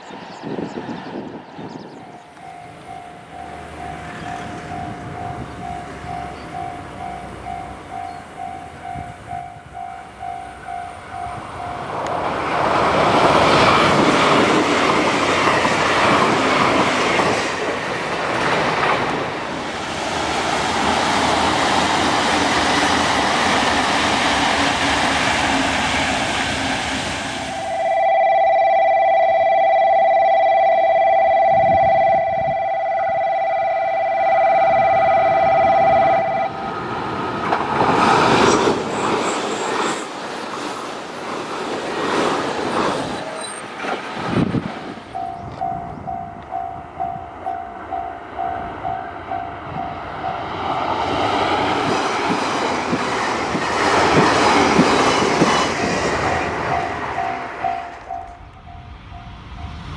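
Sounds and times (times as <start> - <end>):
train rushing past: 0.0 - 59.9
level crossing bell dinging: 27.5 - 36.5
electronic warning tone: 27.5 - 36.6.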